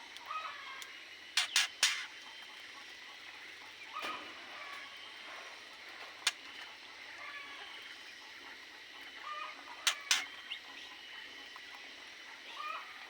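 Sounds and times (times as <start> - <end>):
small birds chirping: 9.8 - 10.9.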